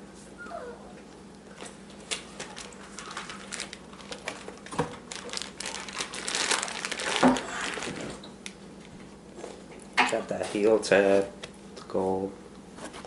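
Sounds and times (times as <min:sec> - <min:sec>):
packaging wrap crinkling: 0:01.6 - 0:08.9.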